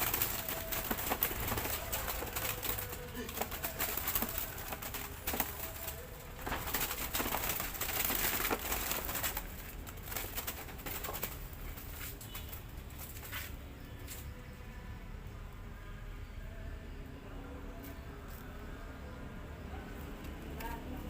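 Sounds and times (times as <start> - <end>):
dove flapping wings: 0.0 - 13.4
rustling and clattering: 0.0 - 13.6.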